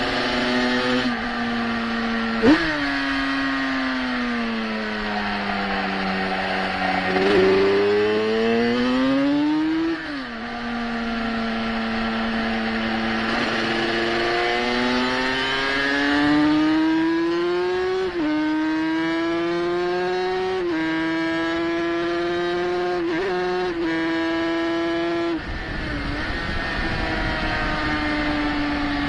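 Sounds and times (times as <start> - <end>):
racing motorcycle engine revving: 0.0 - 29.0
wind rush on microphone: 25.2 - 29.0.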